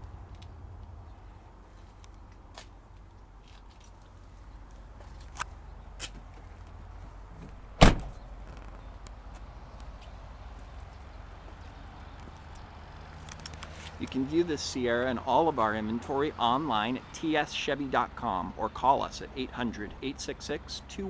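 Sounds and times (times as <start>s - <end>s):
low steady rumble: 7.3s - 8.8s
truck door slamming: 7.4s - 8.6s.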